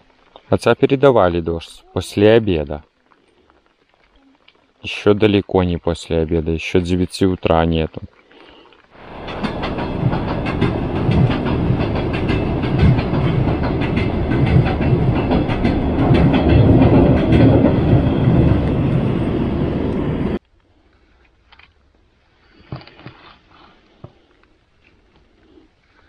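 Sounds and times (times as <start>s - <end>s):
rain drops pattering: 0.0s - 10.4s
low rumble: 9.0s - 20.4s.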